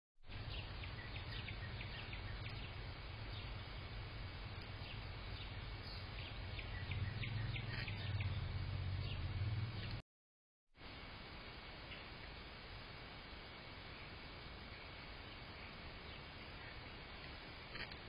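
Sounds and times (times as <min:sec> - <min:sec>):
small songbirds chirping: 0:00.2 - 0:10.0, 0:11.4 - 0:12.5, 0:13.2 - 0:18.0
steady low hum: 0:00.2 - 0:10.0.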